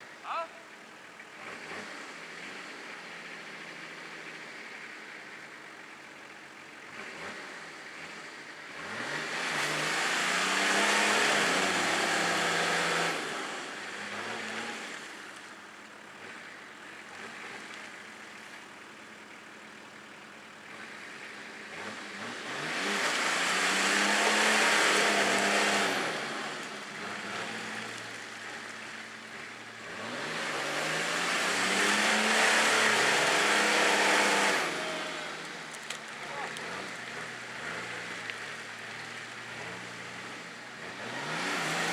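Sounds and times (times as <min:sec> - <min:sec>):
engine revving: 0:01.4 - 0:02.6, 0:06.9 - 0:15.0, 0:20.7 - 0:38.8, 0:39.5 - 0:41.9.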